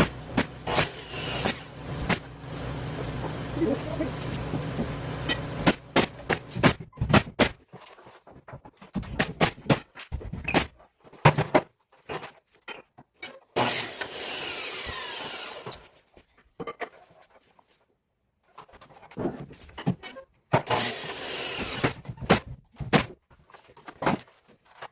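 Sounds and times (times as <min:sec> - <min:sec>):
power tool running: 0:00.0 - 0:06.6, 0:13.6 - 0:15.9, 0:20.7 - 0:22.0
knocks and clatter on wood: 0:04.2 - 0:13.2.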